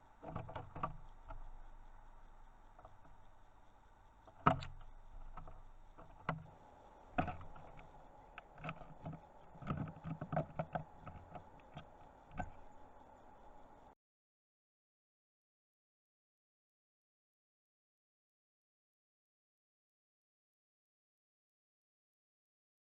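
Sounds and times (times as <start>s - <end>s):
birds pecking on feeder: 0.0s - 13.9s
faint steady hum: 0.0s - 14.0s.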